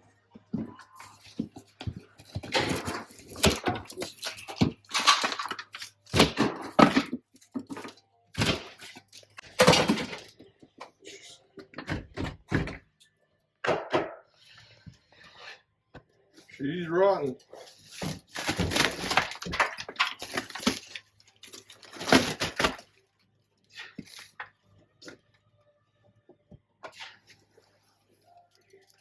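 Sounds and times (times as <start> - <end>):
wood being pried and broken: 1.3 - 10.5, 17.9 - 22.9.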